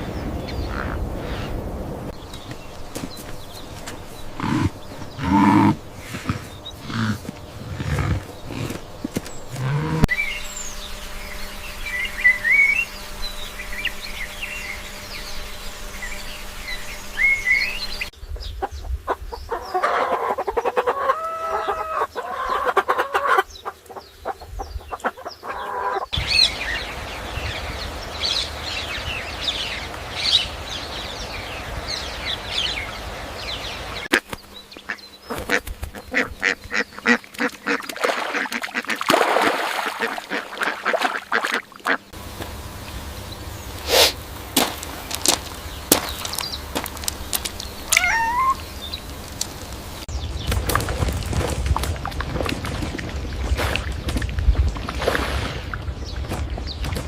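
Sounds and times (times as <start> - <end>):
high bird chirping: 45.5 - 49.2
lower repeated poultry call: 47.9 - 48.7.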